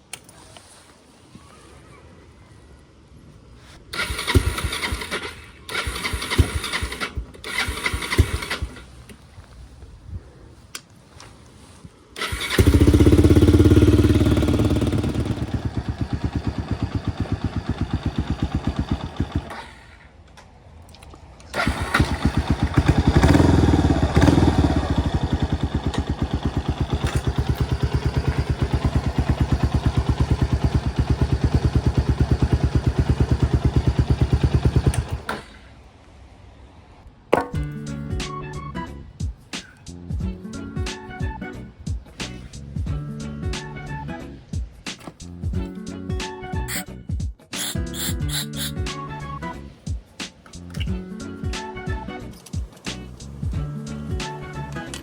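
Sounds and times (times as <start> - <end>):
motorcycle engine starting and idling: 3.9 - 9.6, 12.2 - 20.3, 21.0 - 35.9, 47.6 - 55.0.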